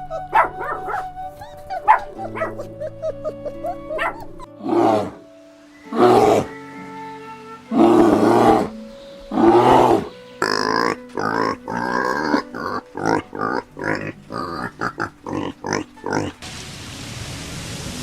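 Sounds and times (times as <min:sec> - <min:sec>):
background music: 0:00.0 - 0:16.8
big cat roaring: 0:04.0 - 0:05.2, 0:05.9 - 0:06.5, 0:07.7 - 0:16.4.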